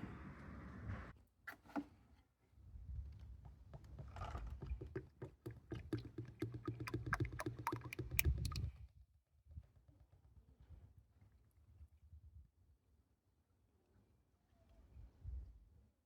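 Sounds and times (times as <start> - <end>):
motor oil glugging from a jug: 3.9 - 8.7.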